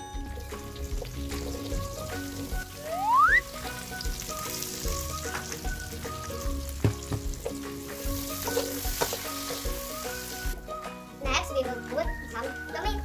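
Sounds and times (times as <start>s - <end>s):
background music: 0.0s - 13.0s
garlic and onion sizzling in oil: 0.0s - 13.0s
loud rising whistle-like glide: 2.8s - 3.5s
stirring in a pan: 3.5s - 10.6s
utensil knock: 6.8s - 7.6s.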